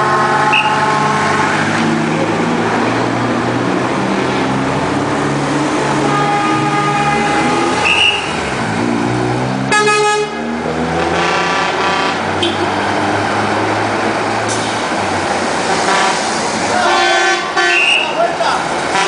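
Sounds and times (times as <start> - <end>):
trucks passing: 0.0 - 19.0
truck horn blasts: 0.4 - 1.0, 6.0 - 8.4, 9.7 - 12.8, 15.7 - 18.2.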